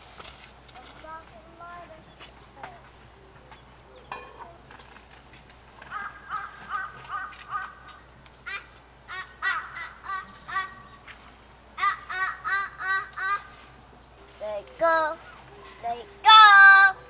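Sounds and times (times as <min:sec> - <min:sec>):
bird calling: 0:05.8 - 0:17.0.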